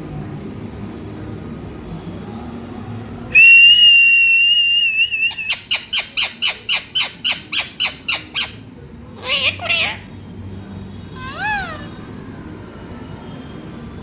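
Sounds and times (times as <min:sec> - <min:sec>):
parrot whistling: 0:03.4 - 0:08.6, 0:09.2 - 0:10.1, 0:11.1 - 0:12.0.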